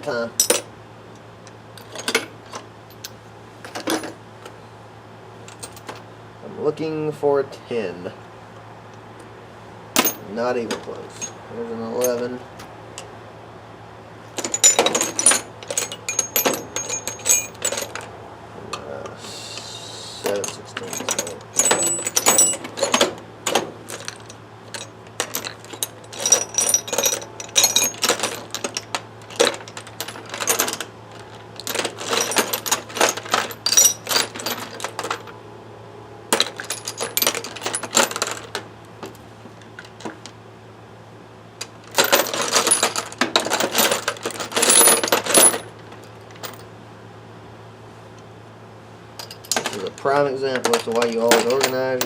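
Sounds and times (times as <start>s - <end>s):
metal tools clinking in a bag: 14.4s - 18.1s, 20.3s - 23.2s, 23.9s - 35.3s, 42.0s - 45.6s, 49.2s - 52.0s.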